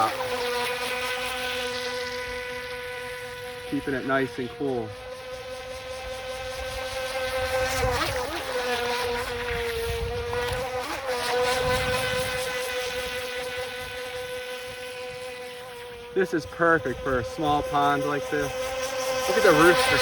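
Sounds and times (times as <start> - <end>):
electric motor whining: 0.0 - 20.0.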